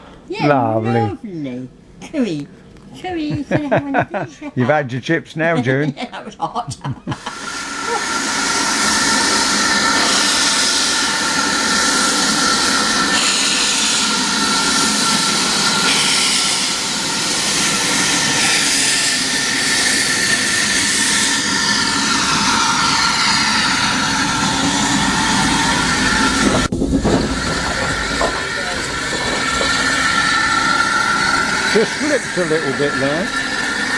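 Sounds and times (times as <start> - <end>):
steam locomotive hissing: 6.8 - 33.9.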